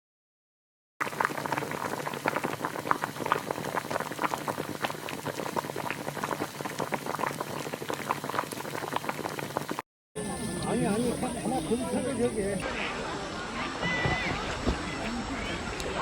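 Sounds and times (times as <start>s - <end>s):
liquid bubbling with pops: 1.0s - 9.8s.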